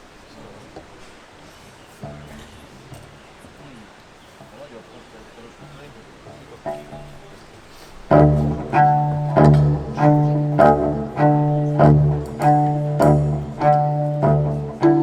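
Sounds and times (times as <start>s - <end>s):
accented string chords: 2.0s - 3.9s, 4.6s - 15.0s
low bass note: 8.1s - 15.0s.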